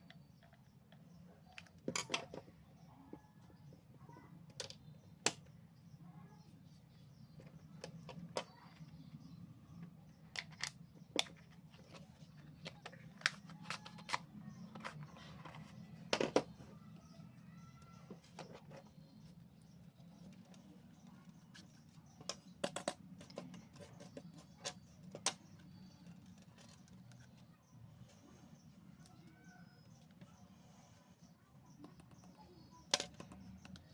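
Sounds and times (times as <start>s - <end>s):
small clicks and taps: 31.7s - 33.9s.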